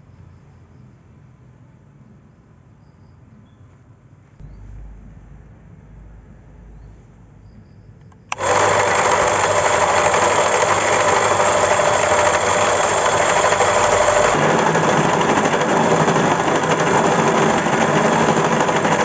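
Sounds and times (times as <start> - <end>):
electric pump motor running: 8.3 - 19.0.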